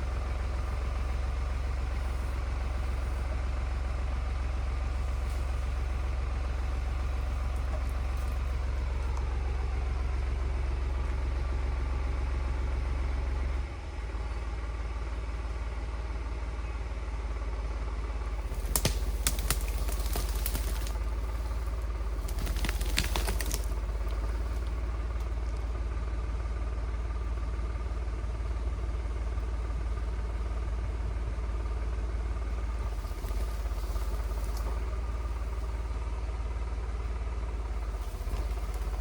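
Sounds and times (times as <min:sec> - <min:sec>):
tractor engine running: 0:00.0 - 0:39.0.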